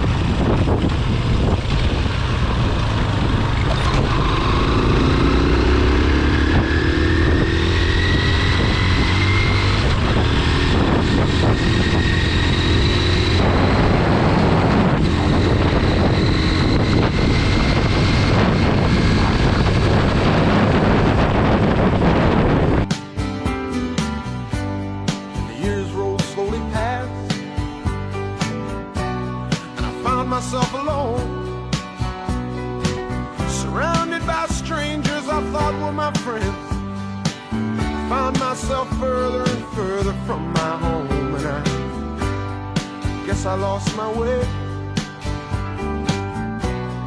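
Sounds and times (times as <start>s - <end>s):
wind rumble on microphone: 0.0s - 22.9s
motorcycle engine accelerating: 0.0s - 25.3s.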